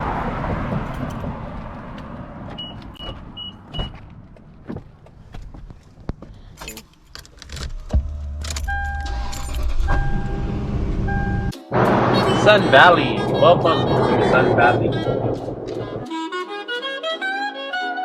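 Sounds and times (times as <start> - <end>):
steady low hum: 10.3 - 16.1.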